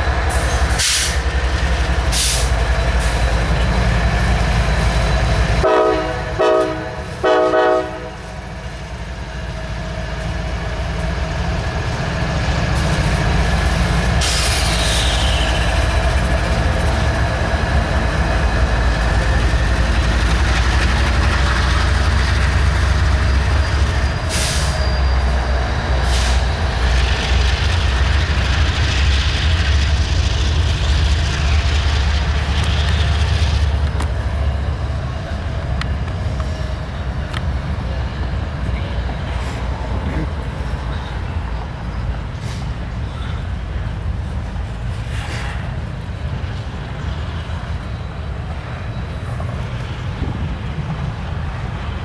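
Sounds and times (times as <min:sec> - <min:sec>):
freight train rumbling past: 0:00.0 - 0:52.0
wheel squeal: 0:14.2 - 0:16.0, 0:23.0 - 0:25.5.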